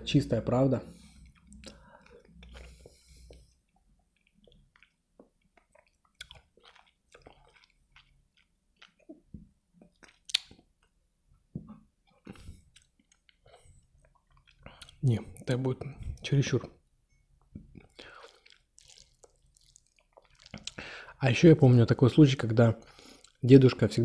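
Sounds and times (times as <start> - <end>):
chewing noodles: 0.9 - 10.7, 12.0 - 15.0, 17.7 - 20.8, 22.9 - 23.4
lip smacks: 1.2 - 10.7, 17.6 - 20.9
wet mouth clicks: 1.2 - 10.7, 17.6 - 20.8.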